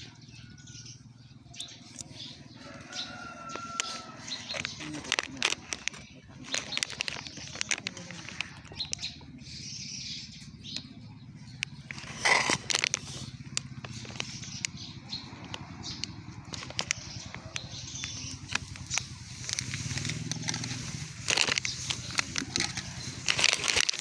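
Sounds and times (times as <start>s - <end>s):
birds chirping: 0.0s - 24.0s
sharp clicks and taps: 11.6s - 24.0s.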